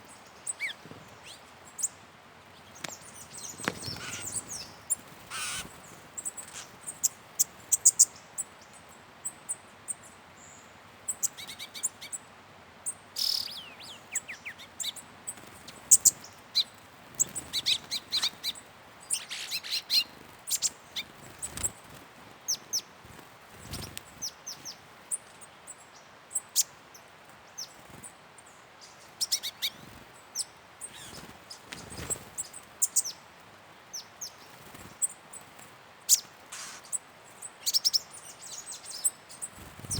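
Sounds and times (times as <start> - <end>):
wild birds chirping and whistling: 0.0 - 22.9, 23.6 - 33.2, 33.9 - 39.9.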